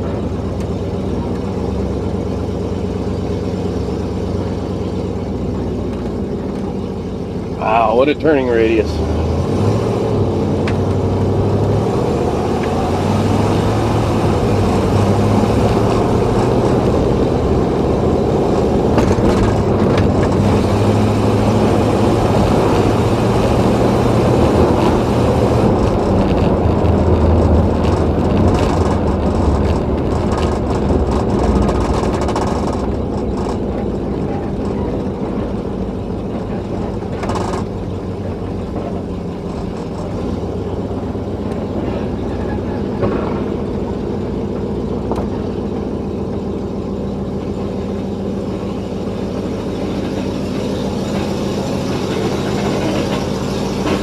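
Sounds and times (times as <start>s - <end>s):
car engine running: 0.0s - 54.0s
road noise: 0.0s - 54.0s.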